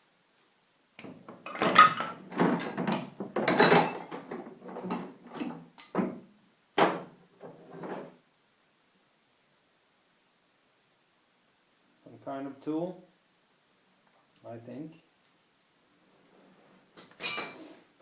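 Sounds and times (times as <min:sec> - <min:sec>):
metal tools clattering in a box: 0:01.3 - 0:05.5, 0:17.2 - 0:17.8.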